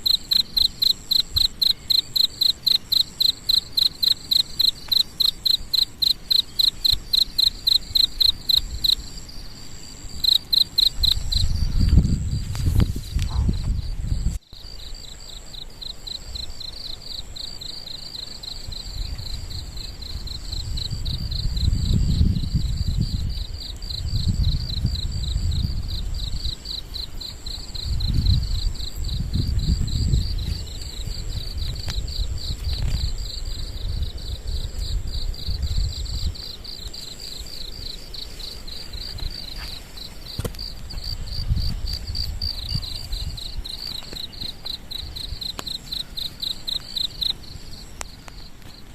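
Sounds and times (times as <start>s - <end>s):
insects trilling: 0.0s - 48.9s
wind buffeting microphone: 10.0s - 14.8s, 18.5s - 47.8s.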